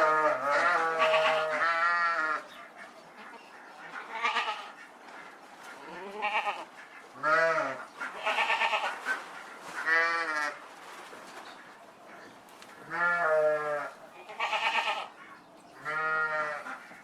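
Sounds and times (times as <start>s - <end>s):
livestock bleating: 0.0s - 2.4s, 4.1s - 4.7s, 5.9s - 6.6s, 7.2s - 8.9s, 12.9s - 15.1s, 15.8s - 16.7s.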